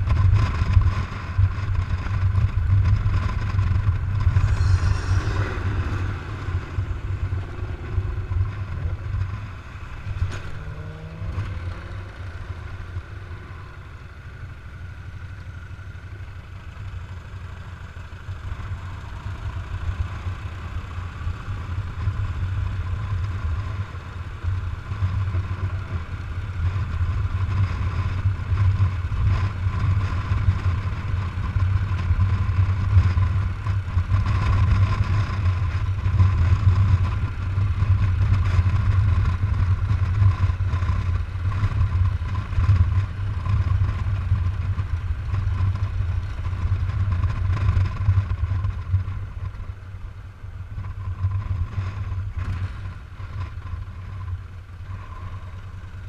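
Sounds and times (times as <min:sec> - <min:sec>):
motorcycle engine running: 0:00.0 - 0:56.0
wind rushing: 0:03.5 - 0:10.7.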